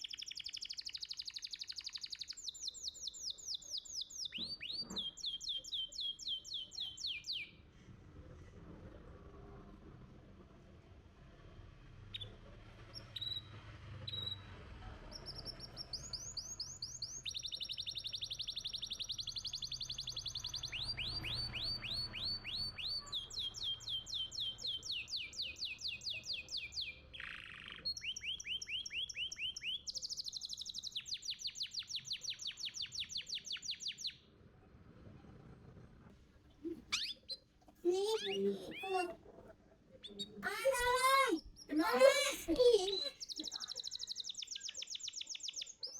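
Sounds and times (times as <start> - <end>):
canary singing trills: 0.0 - 7.5, 15.1 - 34.3, 36.6 - 45.9
canary chirps: 0.0 - 7.6, 12.1 - 35.6, 36.6 - 45.9.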